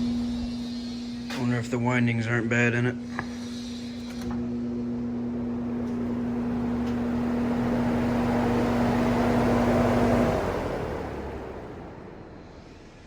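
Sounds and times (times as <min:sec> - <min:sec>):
electric motor hum: 0:03.6 - 0:12.8.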